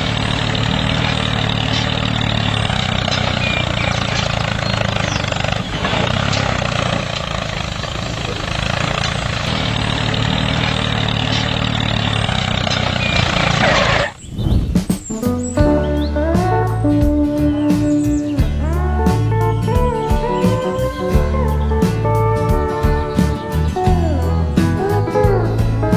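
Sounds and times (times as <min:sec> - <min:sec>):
small motor droning: 0:00.0 - 0:14.2.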